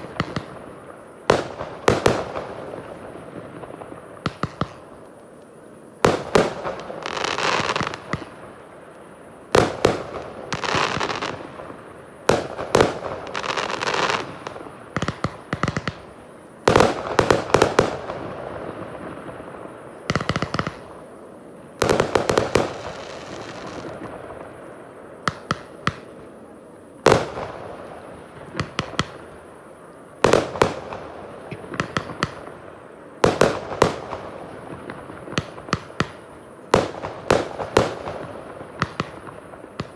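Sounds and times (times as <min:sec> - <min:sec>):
firework crackling: 0:00.0 - 0:39.9
volleys of small pops: 0:03.8 - 0:09.0, 0:12.3 - 0:18.2, 0:20.1 - 0:21.0, 0:25.3 - 0:26.2, 0:30.3 - 0:32.6, 0:33.2 - 0:39.9
firework shells bursting: 0:20.1 - 0:21.0.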